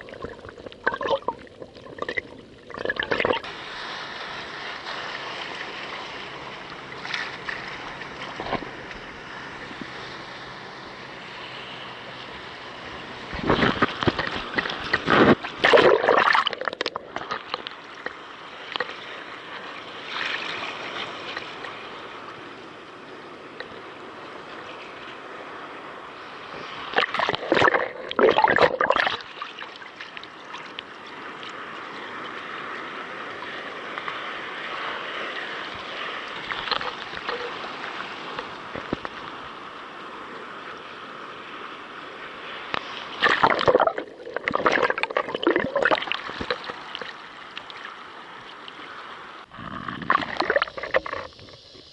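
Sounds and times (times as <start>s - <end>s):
water sloshing against kayak hull: 0.0s - 10.3s, 11.5s - 19.0s, 26.5s - 39.6s, 42.5s - 48.8s, 49.8s - 51.7s
water splashing: 0.0s - 22.6s, 26.2s - 40.8s, 42.2s - 51.9s.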